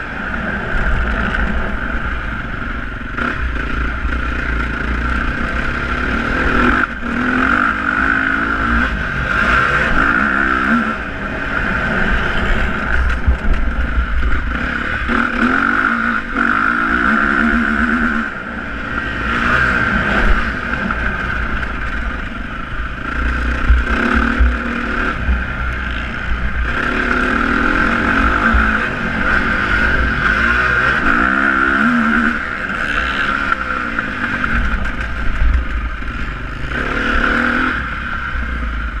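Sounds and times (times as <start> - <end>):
dirt bike engines revving: 0.0 - 39.0
wind rumble on microphone: 10.9 - 15.4.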